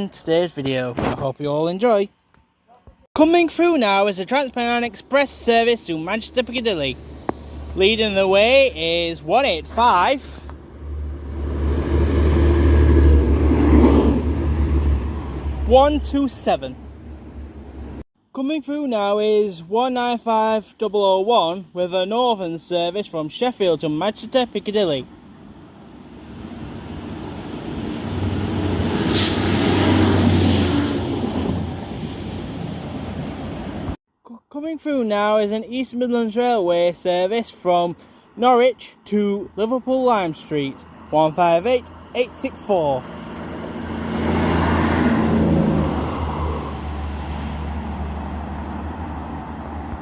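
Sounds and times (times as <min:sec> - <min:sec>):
diesel train passing: 0:04.2 - 0:18.0, 0:25.2 - 0:34.0, 0:42.8 - 0:50.0
train engine hum: 0:06.5 - 0:16.0.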